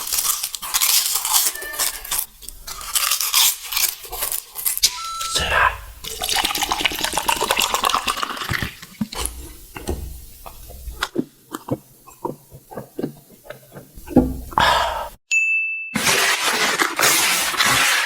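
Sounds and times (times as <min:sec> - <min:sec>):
eating crunches: 0:00.0 - 0:04.8, 0:06.1 - 0:14.7
high beep: 0:04.8 - 0:06.1.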